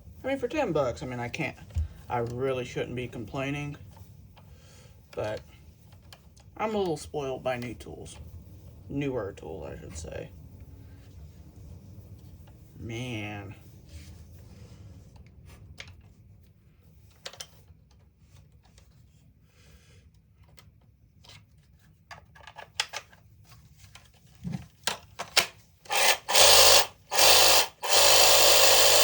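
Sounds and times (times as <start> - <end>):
saw parts clicking and rubbing: 25.2 - 29.0
reciprocating saw bursts: 25.9 - 29.0.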